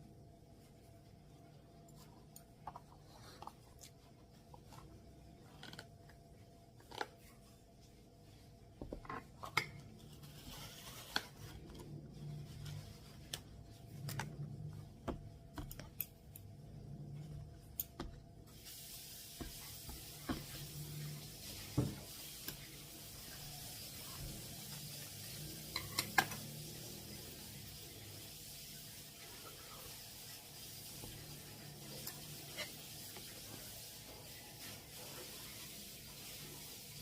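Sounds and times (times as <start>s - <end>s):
steady hiss: 18.4s - 37.0s.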